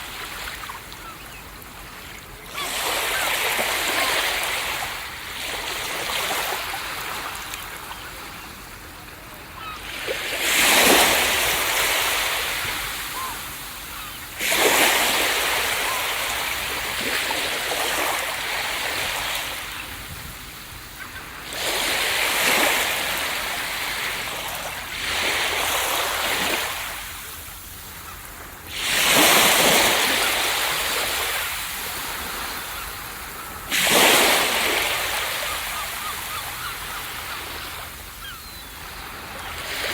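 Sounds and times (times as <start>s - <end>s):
ocean waves crashing on beach: 0.0s - 39.9s.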